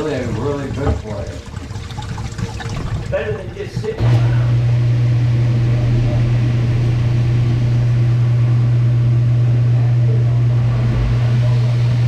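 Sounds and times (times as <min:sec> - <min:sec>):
electric motor hum: 0:03.0 - 0:12.0.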